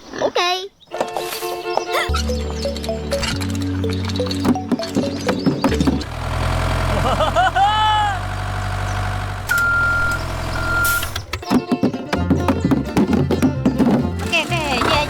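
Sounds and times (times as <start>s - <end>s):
music: 0.9s - 6.1s, 11.3s - 15.0s
heavy vehicle engine humming: 5.0s - 11.5s, 14.1s - 15.0s
rising and falling wail: 6.8s - 8.4s
reversing alarm beeps: 9.5s - 11.2s.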